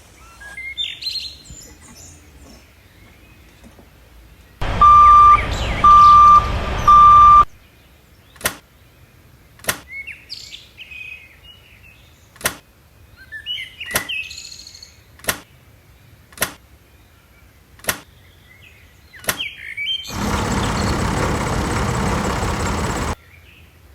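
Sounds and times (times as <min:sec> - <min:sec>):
birds chirping: 0:04.6 - 0:07.4, 0:20.1 - 0:23.2
loud beeps: 0:04.6 - 0:07.6
noisy rumble: 0:04.6 - 0:07.6, 0:20.1 - 0:23.2.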